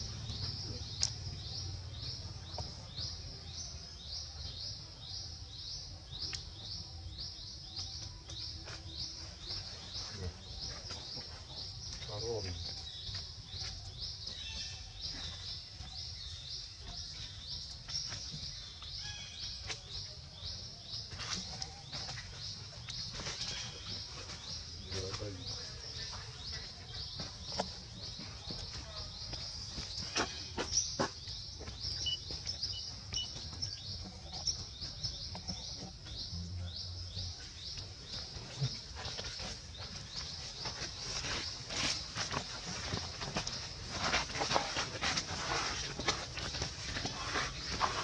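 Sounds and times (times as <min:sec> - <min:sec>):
birds chirping: 0:00.0 - 0:48.0
bird high chirping call: 0:31.9 - 0:35.2.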